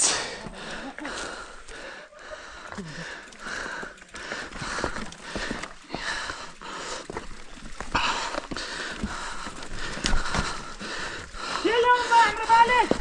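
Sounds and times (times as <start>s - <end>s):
heavy breathing: 0.0s - 13.0s
footsteps on rough trail: 0.3s - 13.0s
bike clicks and knocks: 2.7s - 11.2s.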